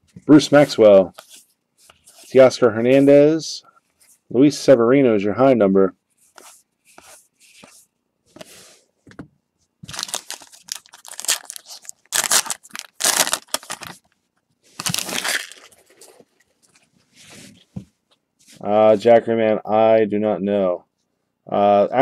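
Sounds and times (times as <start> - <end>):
wrapper tearing and crinkling: 9.9 - 14.0, 14.8 - 16.2.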